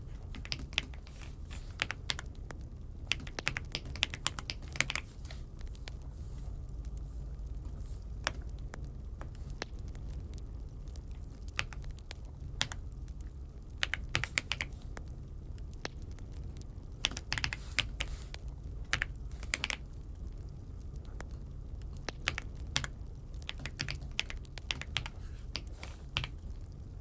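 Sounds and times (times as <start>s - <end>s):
mechanical keyboard keystrokes: 0.2s - 6.0s, 10.9s - 12.9s, 13.7s - 15.1s, 17.0s - 19.9s, 21.8s - 26.7s.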